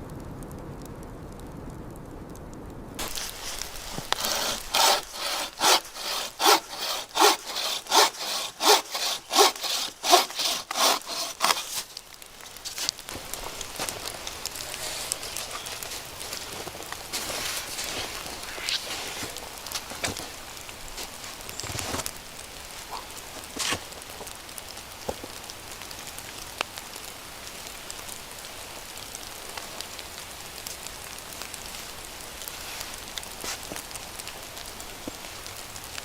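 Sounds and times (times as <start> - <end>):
hand saw cutting wood: 3.0 - 11.9.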